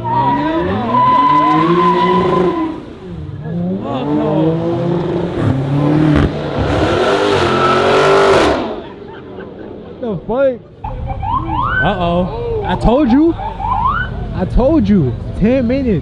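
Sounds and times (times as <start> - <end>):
tyres squealing: 0.0 - 2.9
car engine revving: 0.0 - 10.0.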